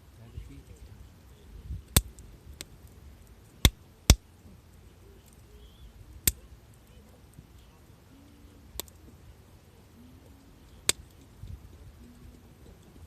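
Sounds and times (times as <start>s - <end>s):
wood fire crackling: 0.0s - 13.0s
sharp fire pops: 1.6s - 4.4s, 5.2s - 7.6s, 8.6s - 9.2s, 10.5s - 13.0s.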